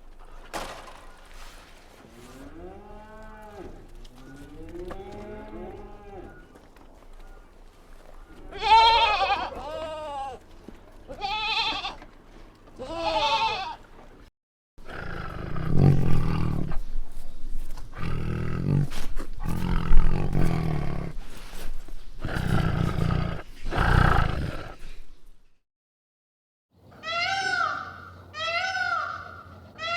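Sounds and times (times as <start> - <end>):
low rough animal calls: 2.1 - 10.5
high arching animal calls: 26.9 - 29.9.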